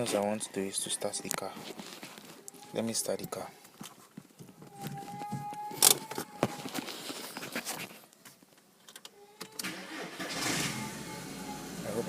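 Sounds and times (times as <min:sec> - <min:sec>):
car engine starting: 0:09.6 - 0:12.0.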